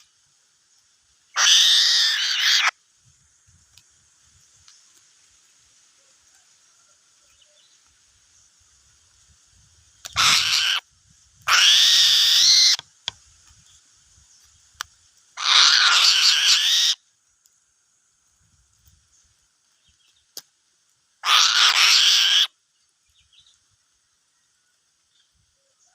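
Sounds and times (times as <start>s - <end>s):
eagle screeching: 1.4s - 2.7s, 10.1s - 10.8s, 11.5s - 12.8s, 15.4s - 17.0s, 21.2s - 22.5s.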